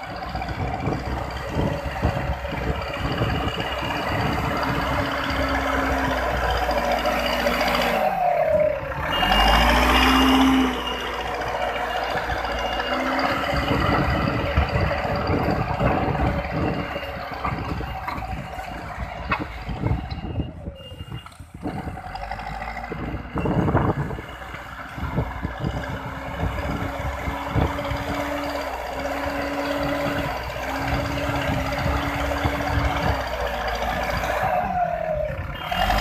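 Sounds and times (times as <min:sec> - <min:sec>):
diesel engine revving: 0:00.0 - 0:36.0.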